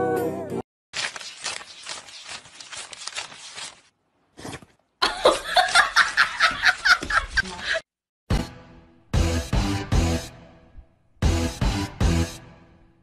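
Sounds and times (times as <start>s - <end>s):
paper banknotes rustling: 0.9s - 4.0s, 5.6s - 7.4s
person laughing loudly: 5.0s - 7.8s.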